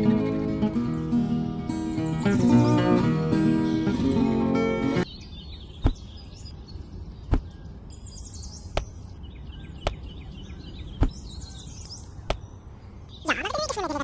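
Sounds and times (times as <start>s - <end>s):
faint bird chirping: 4.9s - 14.0s
sharp knocks: 5.8s - 6.0s, 7.3s - 7.5s.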